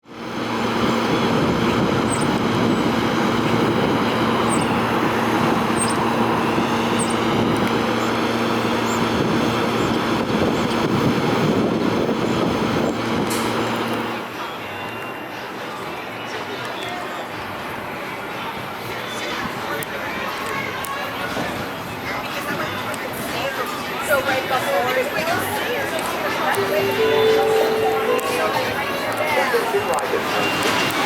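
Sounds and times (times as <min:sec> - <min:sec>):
light rail train rolling by: 0:00.1 - 0:14.4, 0:25.9 - 0:31.0.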